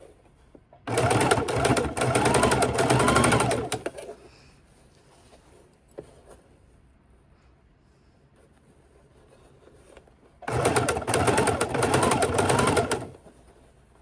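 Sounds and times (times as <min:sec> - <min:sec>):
sewing machine stitching: 0:00.8 - 0:04.0, 0:10.4 - 0:13.2.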